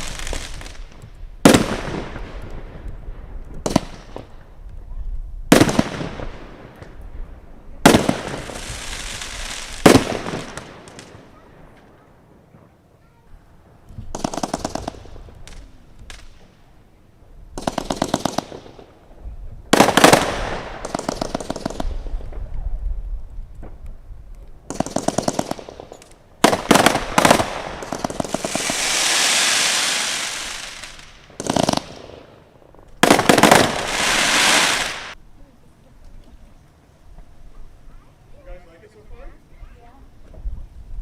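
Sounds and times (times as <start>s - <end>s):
long firework hiss: 0.0s - 2.4s, 7.9s - 11.3s, 24.7s - 32.4s, 33.0s - 35.2s
fireworks crackling reports: 24.7s - 32.0s, 33.0s - 35.2s.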